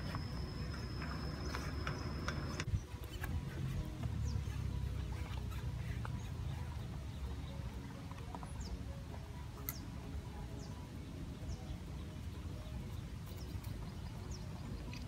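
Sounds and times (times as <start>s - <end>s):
birds chirping: 0.0s - 9.0s, 9.6s - 15.0s.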